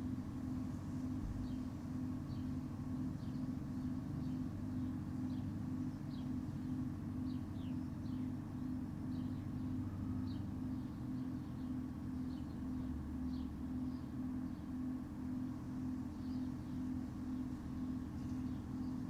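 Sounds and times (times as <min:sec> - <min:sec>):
pulsing mechanical hum: 0:00.0 - 0:19.0
faint bird chirps: 0:16.1 - 0:19.0.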